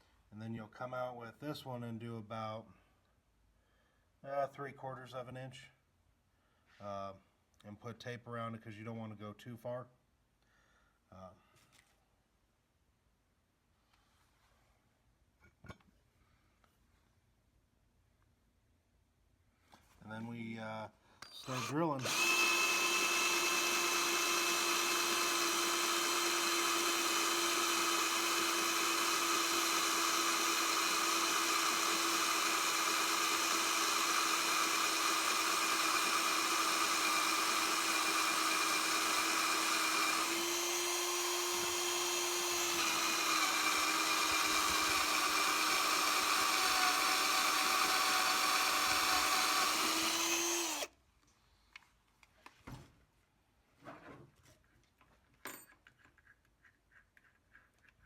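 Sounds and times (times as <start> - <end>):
electric drill whining: 21.2 - 50.9.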